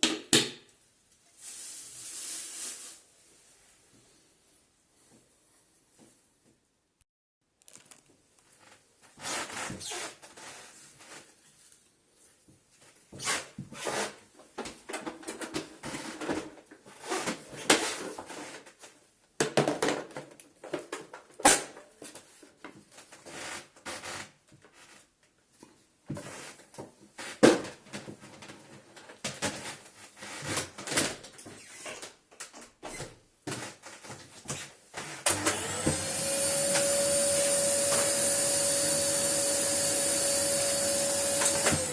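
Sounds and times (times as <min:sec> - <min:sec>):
plastic parts clicking and rattling: 0:07.6 - 0:08.1.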